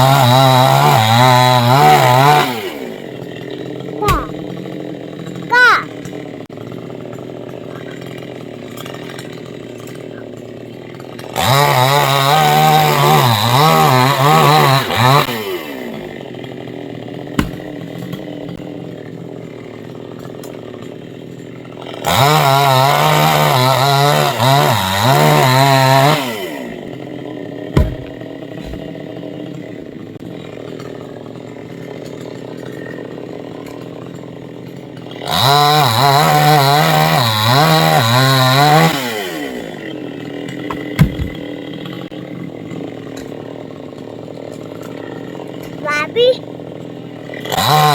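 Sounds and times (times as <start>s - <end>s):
chainsaw cutting wood: 0.0s - 47.9s
short sharp knocks: 17.4s - 17.7s.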